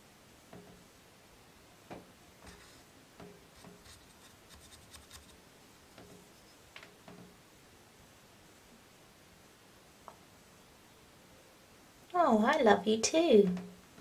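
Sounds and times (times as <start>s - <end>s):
light scratches: 2.4s - 5.4s, 6.0s - 7.3s.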